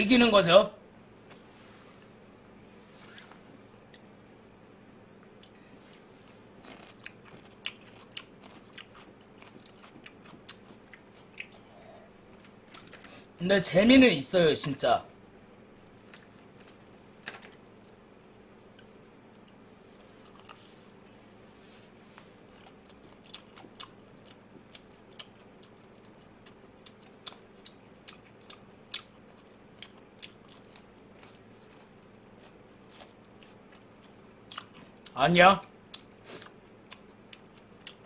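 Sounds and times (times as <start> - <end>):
faint steady hum: 0.0 - 38.0
chewing and crunching: 5.2 - 13.1, 15.7 - 21.2, 22.1 - 38.0.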